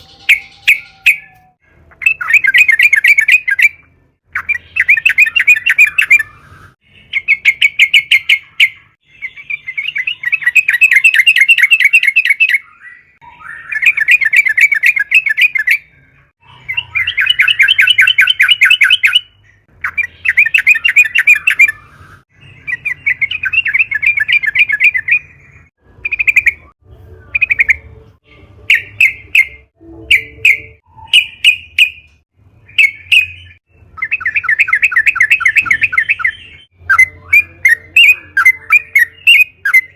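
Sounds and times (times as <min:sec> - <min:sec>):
bird bubbly chattering song: 0:04.4 - 0:27.8, 0:32.7 - 0:39.9.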